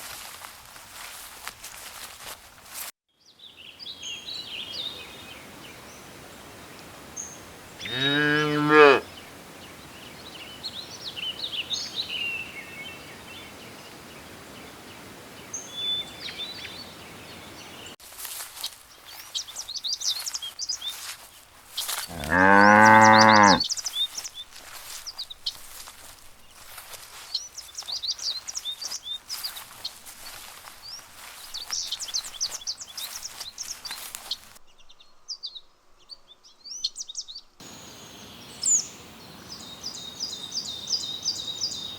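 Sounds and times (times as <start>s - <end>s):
small birds chirping: 7.2s - 41.9s
cows mooing: 7.8s - 9.0s, 22.1s - 23.6s.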